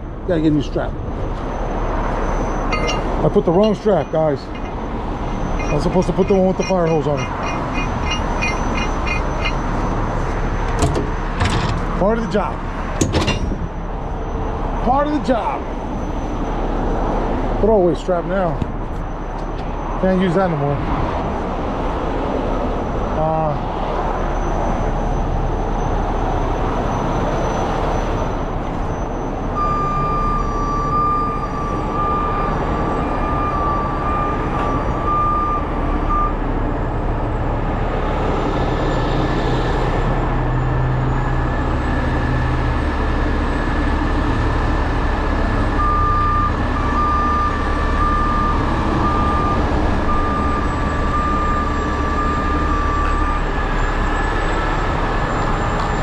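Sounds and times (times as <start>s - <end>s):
diesel truck engine running: 0.0s - 19.9s, 24.2s - 56.0s
backup alarm beeping: 2.4s - 10.6s, 45.8s - 53.5s.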